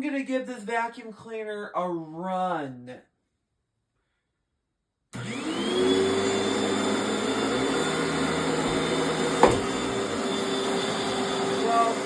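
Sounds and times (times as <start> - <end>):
vacuum cleaner motor whine: 5.2 - 12.0
sharp knock: 8.6 - 9.8.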